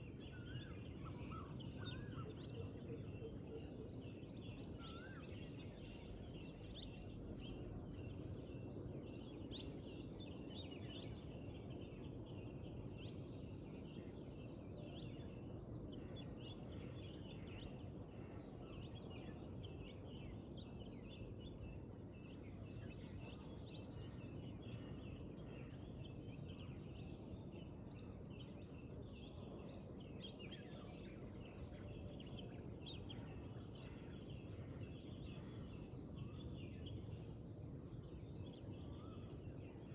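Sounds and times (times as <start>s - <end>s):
high insect trill: 0.0s - 39.9s
small birds chirping: 0.0s - 39.9s.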